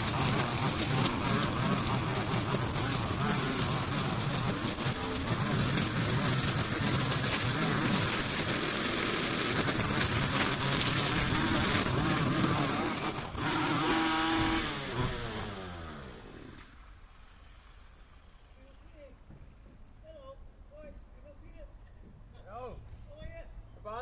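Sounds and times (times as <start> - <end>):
engine running loudly: 0.0 - 16.7.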